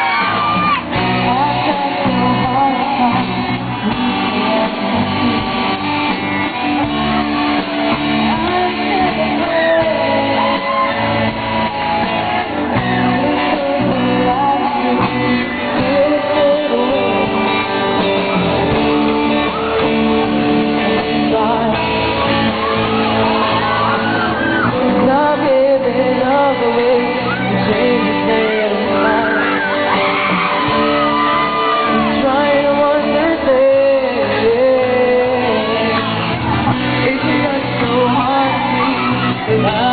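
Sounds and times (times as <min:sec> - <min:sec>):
people shouting: 0:00.0 - 0:01.5, 0:10.1 - 0:13.1, 0:22.0 - 0:24.8, 0:26.3 - 0:32.4, 0:35.4 - 0:39.9
man singing: 0:00.0 - 0:07.6, 0:08.2 - 0:39.9
rock band guitars: 0:00.0 - 0:39.9.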